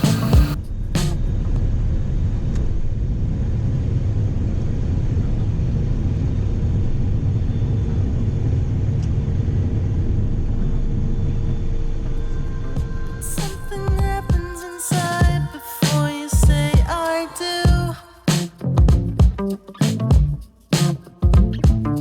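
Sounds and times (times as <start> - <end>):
vehicle engine rumbling: 0.0 - 19.4.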